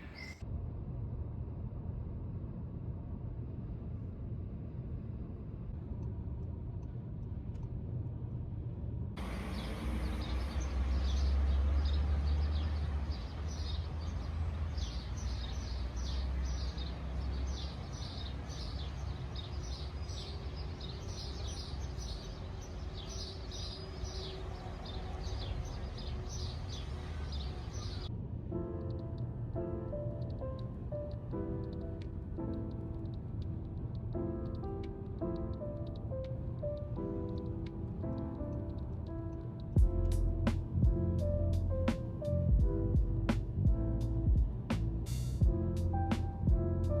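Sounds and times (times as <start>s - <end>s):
small birds chirping: 0.0s - 0.4s, 9.2s - 28.1s
traffic rumble: 0.0s - 47.0s
vehicle road noise rumble: 0.0s - 47.0s.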